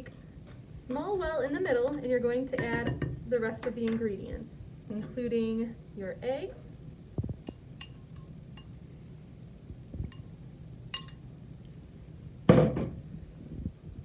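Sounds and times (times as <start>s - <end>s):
kitchenware clatter: 1.8s - 4.1s, 7.4s - 8.7s, 11.0s - 11.2s
kitchenware clinking against bowl: 1.8s - 4.1s, 7.4s - 8.8s, 10.1s - 10.3s, 11.0s - 11.2s.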